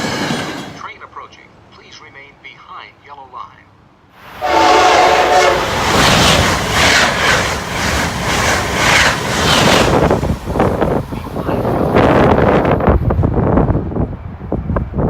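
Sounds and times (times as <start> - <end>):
train wheels rushing on rails: 0.0 - 1.0, 4.2 - 15.0
train horn: 4.4 - 5.9.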